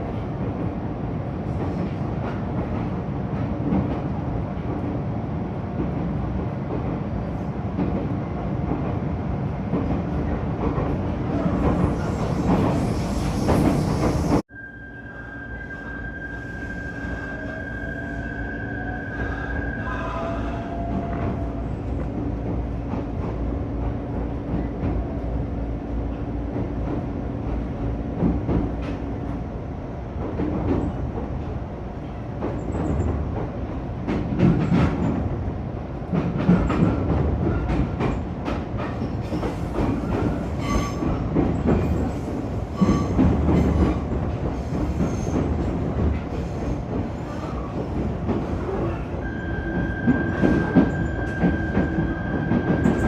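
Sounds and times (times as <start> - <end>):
train humming: 0.0 - 53.0
train wheels clacking on track: 32.3 - 35.5, 36.1 - 53.0.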